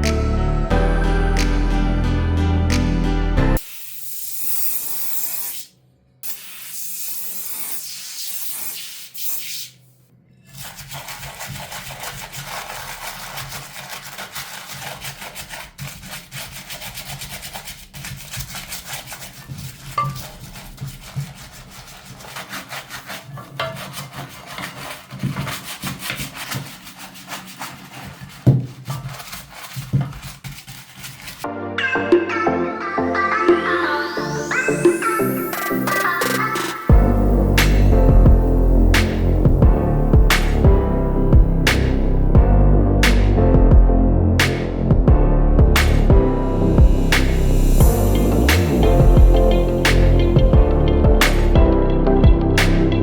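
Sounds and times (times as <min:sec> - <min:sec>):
hissing spray: 0:03.6 - 0:09.8
rapid rubbing strokes: 0:10.5 - 0:31.5, 0:37.0 - 0:40.7, 0:45.8 - 0:51.6.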